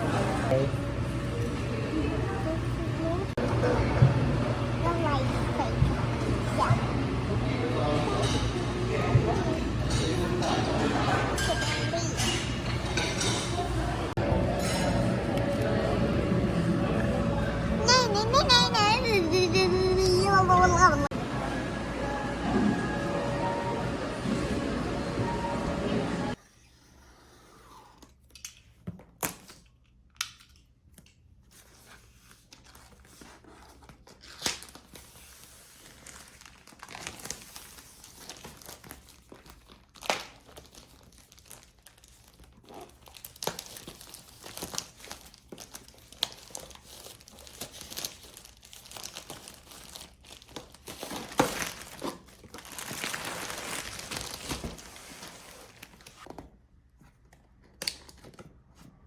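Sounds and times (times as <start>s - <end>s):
packaging crinkling and tearing: 35.8s - 56.2s
packaging rustling: 36.1s - 56.2s.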